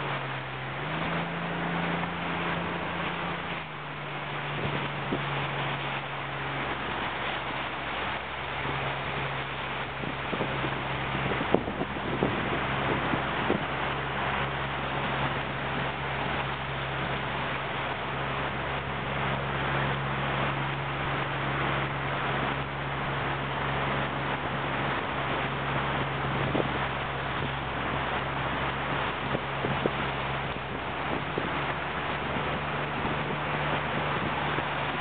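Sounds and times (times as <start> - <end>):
steady low hum: 0.0 - 35.0
water noise: 0.0 - 35.0
wind on microphone: 0.0 - 35.0.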